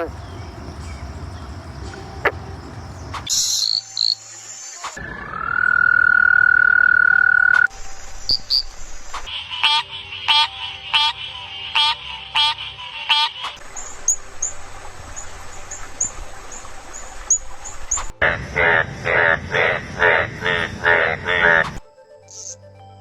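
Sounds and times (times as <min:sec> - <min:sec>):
frog trilling: 0:00.0 - 0:01.1, 0:01.9 - 0:04.2, 0:05.0 - 0:07.7, 0:09.3 - 0:13.6, 0:18.0 - 0:22.6
short repeated frog calls: 0:00.0 - 0:01.2, 0:03.1 - 0:04.2, 0:05.0 - 0:07.7, 0:09.2 - 0:13.6, 0:17.9 - 0:22.6
frogs chirping: 0:00.0 - 0:22.7.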